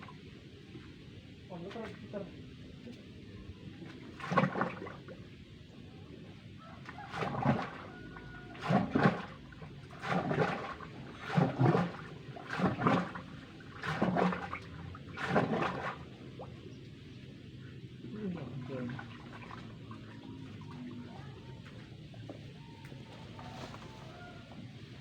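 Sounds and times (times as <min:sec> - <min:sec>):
water and mud gushing from pipe: 0:07.0 - 0:07.8, 0:08.6 - 0:16.1.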